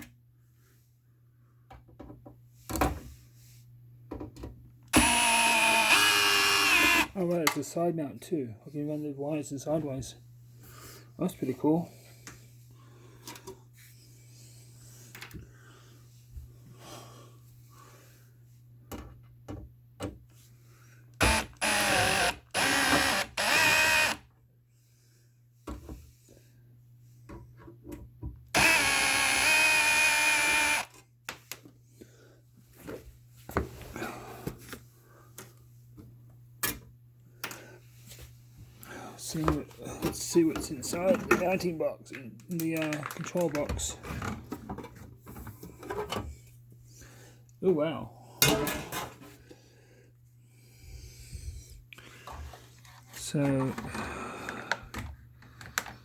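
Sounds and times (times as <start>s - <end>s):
cordless drill backing out screws: 4.9s - 7.1s, 21.2s - 24.2s, 28.6s - 30.9s.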